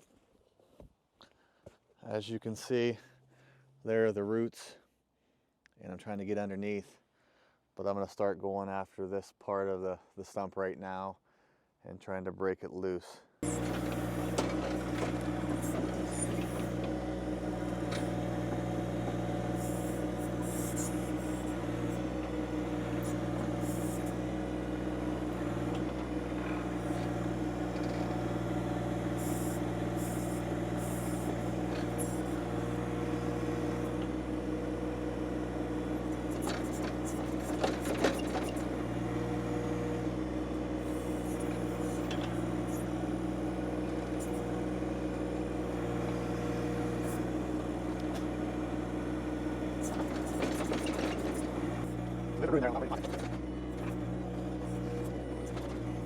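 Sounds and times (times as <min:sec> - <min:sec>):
tractor diesel engine running: 0:13.4 - 0:56.0.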